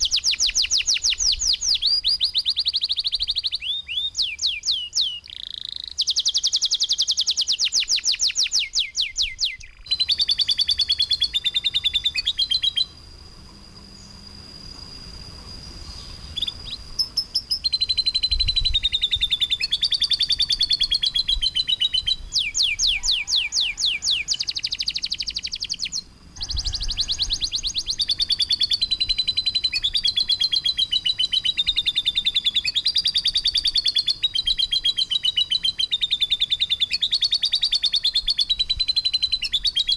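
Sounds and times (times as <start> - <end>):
bird long high whistle: 0.0 - 39.9
songbird rapid trills: 0.0 - 39.9.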